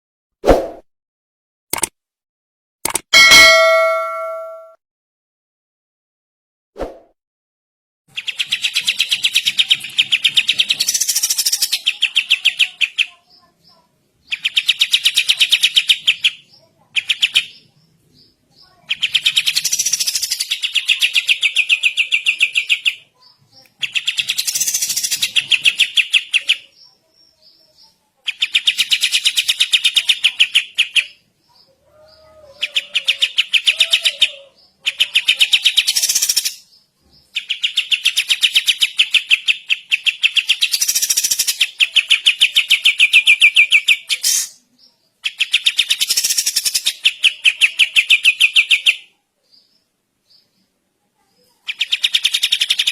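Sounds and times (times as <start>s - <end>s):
songbird rattling song: 8.1s - 31.8s, 32.6s - 33.9s, 34.7s - 50.6s, 51.6s - 52.9s.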